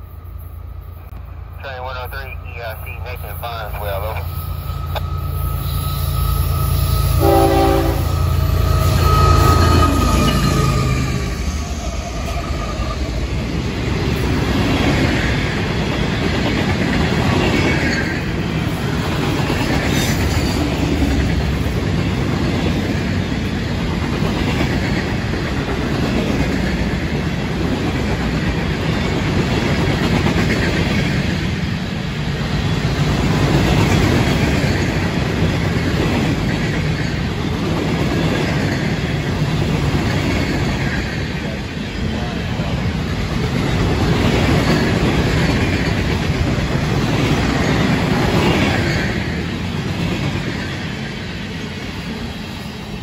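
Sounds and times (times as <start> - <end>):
diesel locomotives rumbling by: 0.0 - 53.0
train horn: 5.6 - 10.4.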